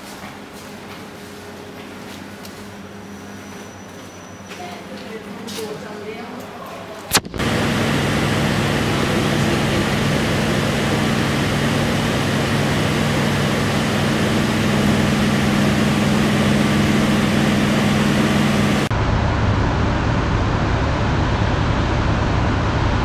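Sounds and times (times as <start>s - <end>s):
low hum: 7.1s - 23.0s.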